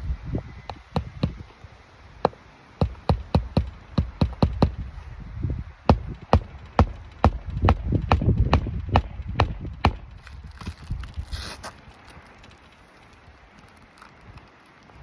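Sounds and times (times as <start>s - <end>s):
hammer striking roofing nails: 0.7s - 1.5s, 2.3s - 4.9s, 5.9s - 10.2s.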